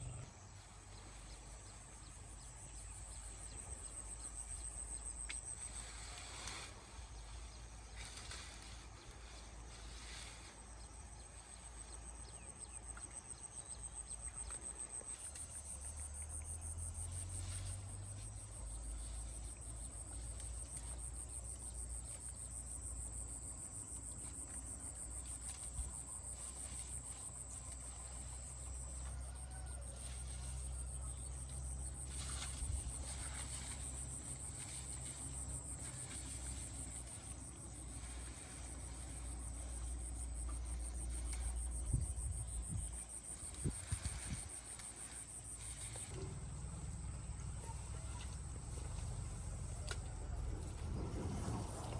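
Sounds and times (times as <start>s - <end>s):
insects trilling: 1.6s - 51.9s
low rumble: 45.7s - 51.9s.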